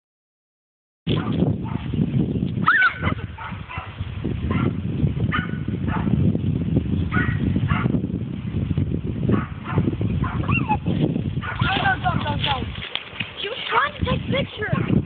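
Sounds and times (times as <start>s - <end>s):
dog yipping and whimpering: 10.3s - 10.9s.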